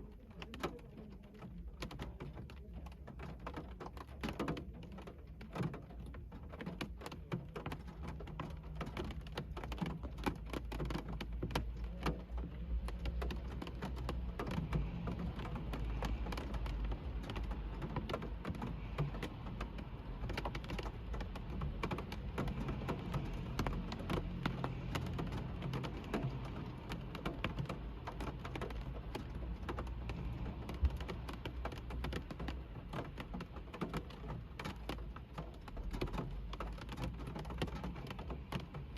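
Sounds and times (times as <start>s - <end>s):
rain ticking on car roof: 0.0s - 38.9s.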